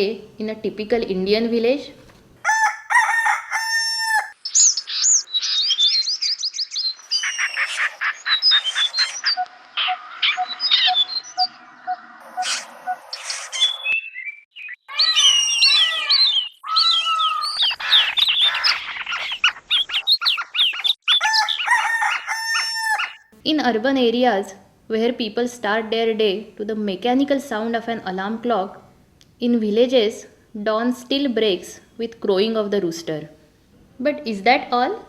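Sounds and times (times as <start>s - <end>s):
rooster crowing: 2.4s - 4.4s, 21.1s - 23.3s
birds chirping: 2.5s - 23.2s.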